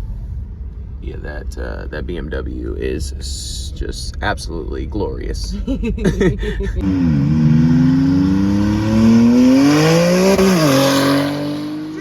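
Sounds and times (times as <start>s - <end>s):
car engine accelerating: 5.4s - 12.0s.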